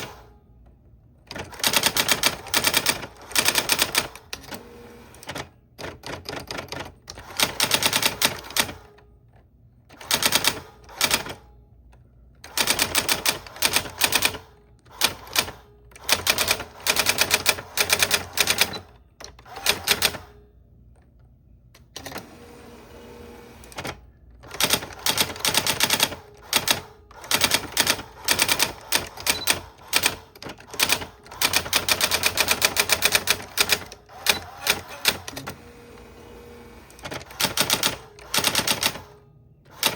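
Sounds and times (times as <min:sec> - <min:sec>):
typewriter keys clacking: 0:01.3 - 0:04.6, 0:05.2 - 0:08.8, 0:12.5 - 0:20.2, 0:23.7 - 0:35.6, 0:37.0 - 0:39.1.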